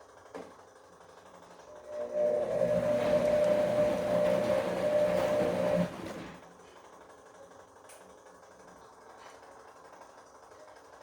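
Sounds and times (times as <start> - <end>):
washing machine motor whine: 1.3 - 6.5.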